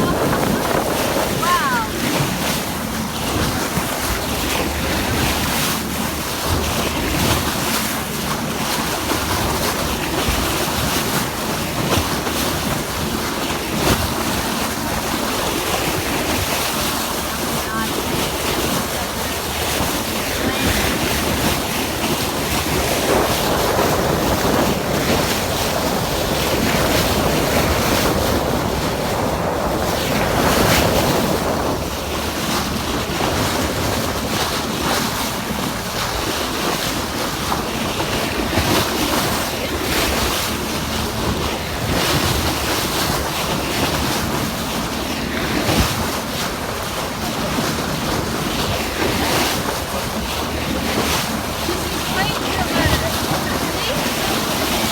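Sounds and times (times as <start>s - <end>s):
wind rushing: 0.0s - 2.9s
surf: 0.0s - 54.9s
wind buffeting microphone: 0.0s - 54.9s.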